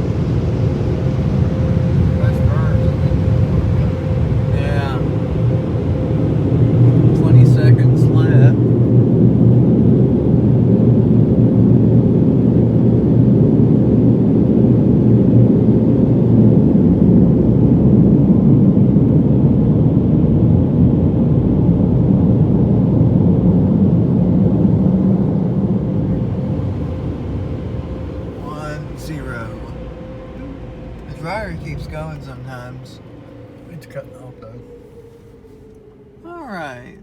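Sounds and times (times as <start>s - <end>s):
car wash dryer blowers: 0.0s - 36.8s.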